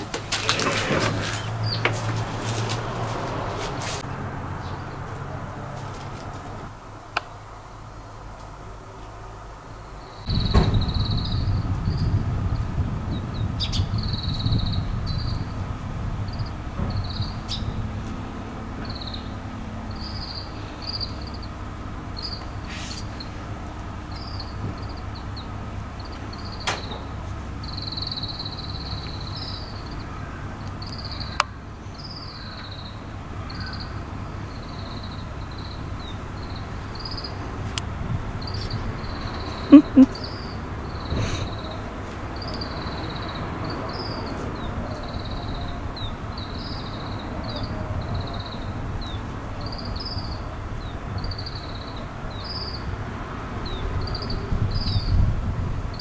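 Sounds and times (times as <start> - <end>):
steady low rumble: 0.0 - 32.2, 32.9 - 42.9
birds chirping: 0.0 - 55.2.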